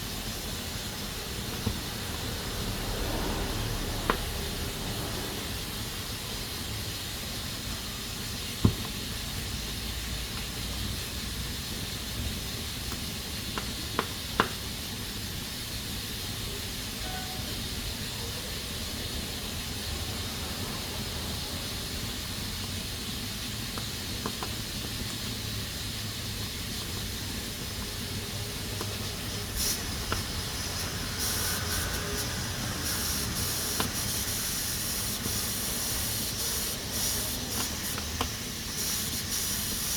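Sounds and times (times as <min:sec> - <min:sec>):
pressure cooker hissing: 0:00.0 - 0:39.9.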